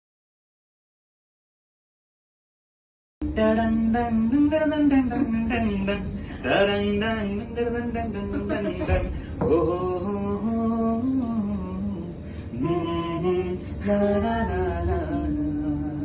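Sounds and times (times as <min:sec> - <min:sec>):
person singing slow melody: 0:03.2 - 0:16.0
singer breathing: 0:06.2 - 0:06.5, 0:09.1 - 0:09.4, 0:12.2 - 0:12.6.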